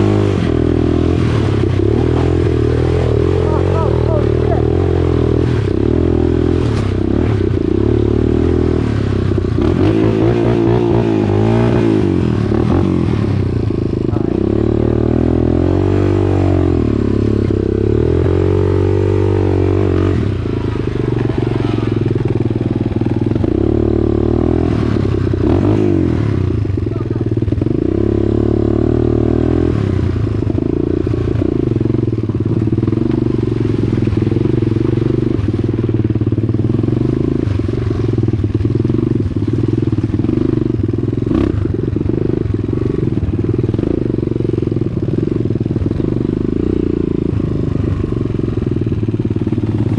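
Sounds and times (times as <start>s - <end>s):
dirt bike engine revving: 0.0s - 35.6s
clatter: 6.6s - 7.6s.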